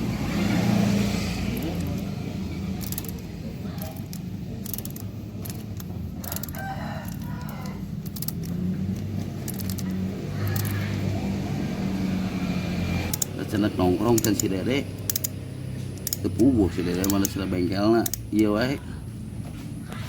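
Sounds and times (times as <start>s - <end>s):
low engine hum: 0.0s - 20.0s
scattered clicks: 1.5s - 11.0s, 13.0s - 18.4s
rooster crowing: 6.1s - 8.8s.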